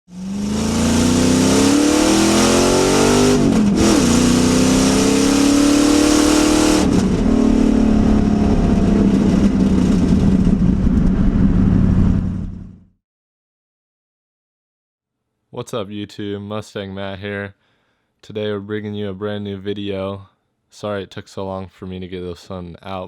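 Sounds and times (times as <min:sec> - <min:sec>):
car engine accelerating hard: 0:00.1 - 0:12.8.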